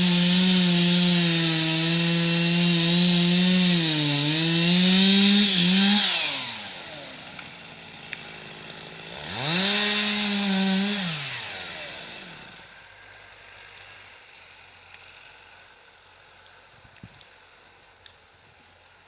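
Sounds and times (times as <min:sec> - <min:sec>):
chainsaw revving: 0:00.0 - 0:12.8.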